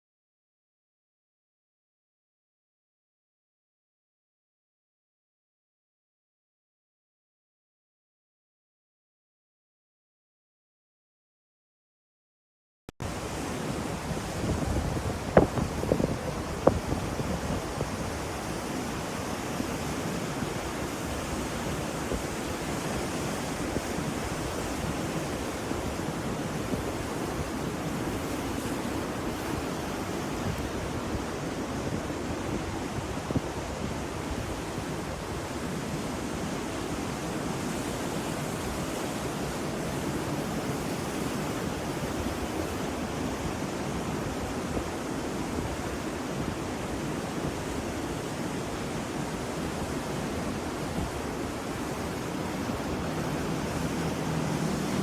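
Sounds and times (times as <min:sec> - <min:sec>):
ocean waves washing: 0:13.0 - 0:55.0.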